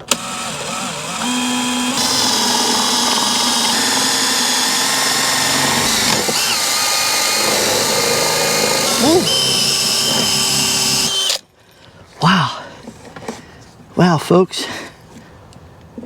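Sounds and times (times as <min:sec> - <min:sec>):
power drill drilling: 0:00.0 - 0:11.4.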